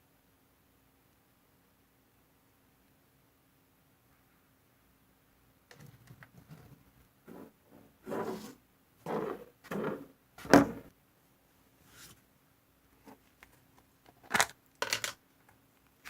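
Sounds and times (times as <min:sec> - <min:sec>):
rustling scraping bursts: 0:07.3 - 0:10.1.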